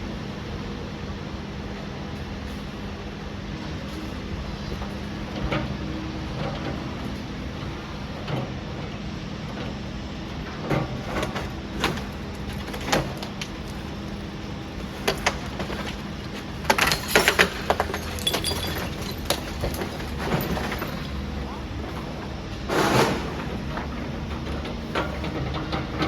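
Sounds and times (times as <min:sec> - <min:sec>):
excavator diesel engine running: 0:00.0 - 0:26.0
masonry knocking and clattering: 0:15.0 - 0:22.2.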